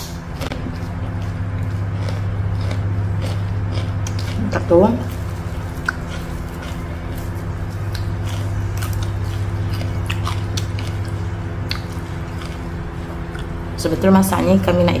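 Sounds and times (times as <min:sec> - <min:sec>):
steady low hum: 0:00.0 - 0:15.0
chewing food: 0:00.3 - 0:13.8
small mouth clicks: 0:05.8 - 0:06.3, 0:07.9 - 0:12.5.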